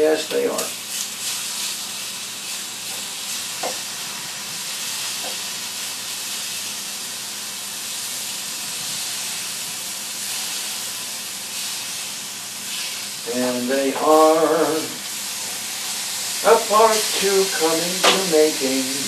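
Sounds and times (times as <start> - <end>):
liver sizzling in a hot pan: 0.6 - 19.0.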